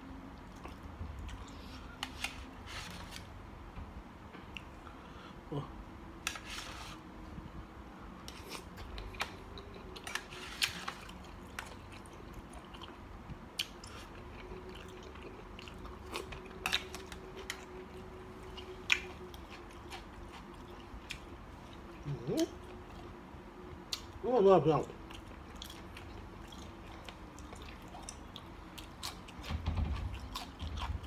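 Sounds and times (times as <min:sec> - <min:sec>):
person chewing food: 0:00.4 - 0:03.2, 0:08.2 - 0:24.2, 0:25.0 - 0:31.0.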